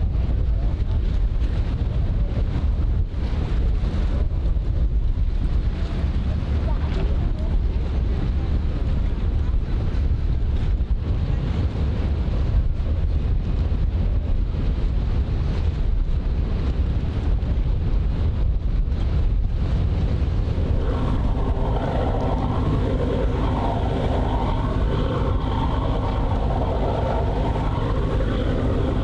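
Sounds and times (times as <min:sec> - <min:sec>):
wind buffeting microphone: 0:00.0 - 0:29.0
engine noise: 0:19.6 - 0:29.0.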